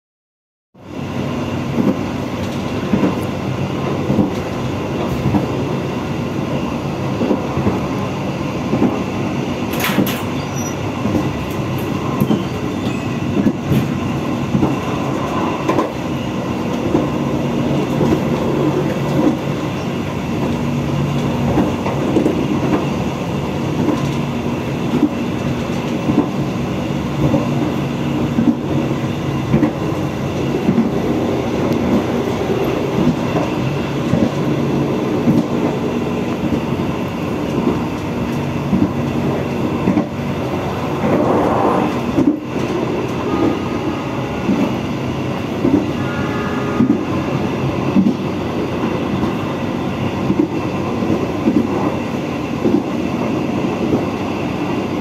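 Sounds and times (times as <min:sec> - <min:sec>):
train wheels rumbling on rails: 0:00.8 - 0:55.0
sharp high squeak: 0:10.2 - 0:10.9, 0:12.2 - 0:13.2.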